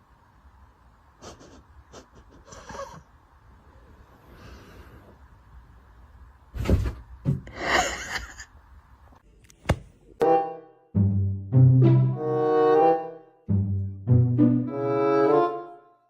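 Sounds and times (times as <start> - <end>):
bowed strings and brass music: 10.2 - 16.0.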